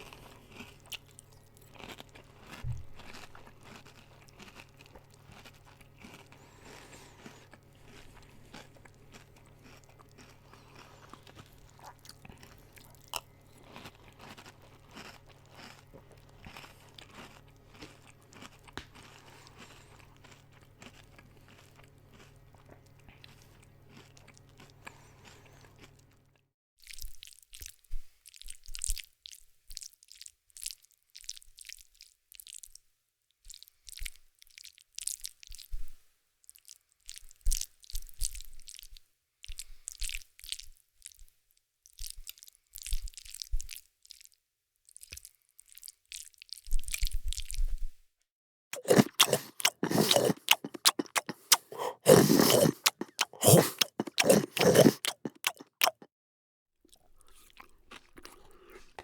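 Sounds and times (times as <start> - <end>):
crunchy food being chewed: 0.0 - 27.7, 48.8 - 56.1, 56.9 - 59.0.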